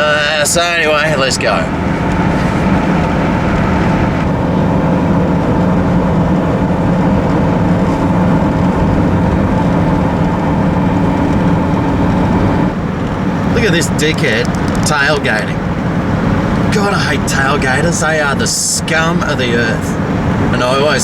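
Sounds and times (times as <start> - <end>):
car engine and tyre noise: 0.0 - 21.0
constant low hum: 0.0 - 21.0.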